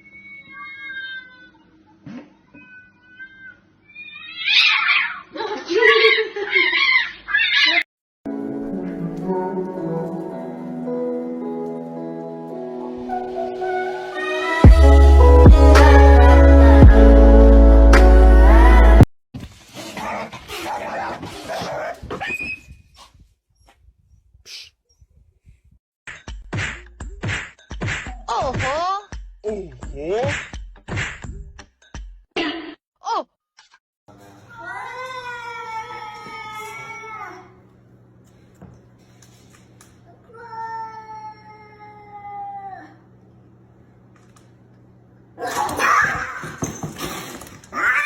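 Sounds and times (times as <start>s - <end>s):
animal crying out: 0.0s - 1.6s, 2.4s - 7.9s, 45.4s - 46.6s, 47.7s - 48.0s
cat yowling: 0.1s - 1.6s, 2.5s - 5.3s, 6.0s - 7.8s.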